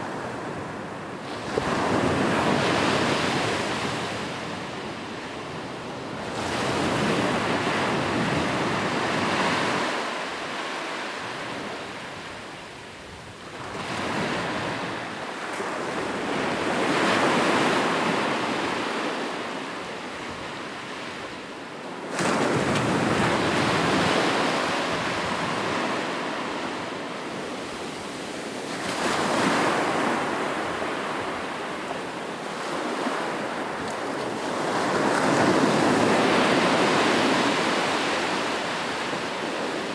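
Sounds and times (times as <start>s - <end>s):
ocean waves breaking on shore: 21.9s - 39.9s.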